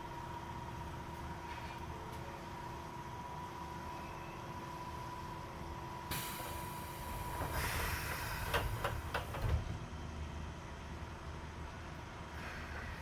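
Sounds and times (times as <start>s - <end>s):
hiss of air: 6.1s - 8.8s
train doors sliding and knocking: 6.4s - 9.8s.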